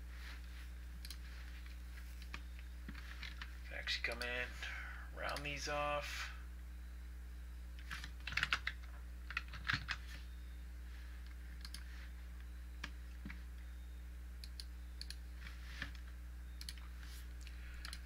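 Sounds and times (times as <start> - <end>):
low electrical hum: 0.0 - 18.0
computer mouse clicks: 1.0 - 1.2, 11.2 - 11.9, 14.4 - 18.0
keyboard clicks: 4.1 - 4.3, 7.8 - 10.0, 11.6 - 11.8, 16.6 - 16.8, 17.4 - 18.0.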